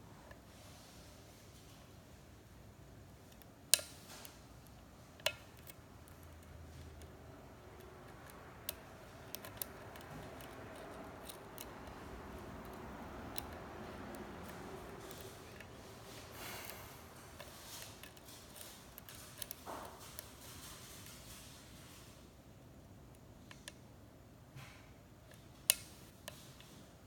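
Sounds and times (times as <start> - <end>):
pick ticking on lock pins: 4.6 - 15.7
pick scraping inside a lock: 7.7 - 20.4.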